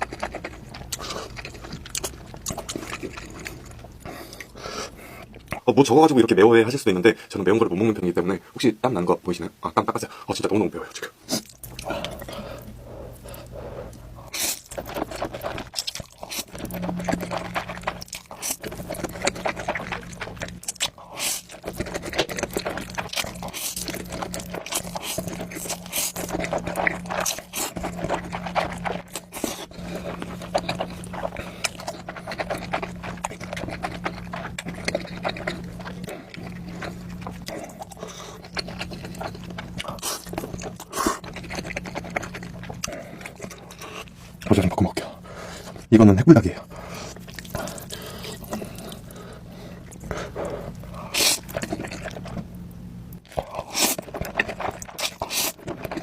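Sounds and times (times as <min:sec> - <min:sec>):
chewing and lip-smacking: 0:00.0 - 0:05.7, 0:10.9 - 0:45.9, 0:46.5 - 0:56.0
noodle slurping: 0:11.3 - 0:44.2, 0:53.3 - 0:56.0.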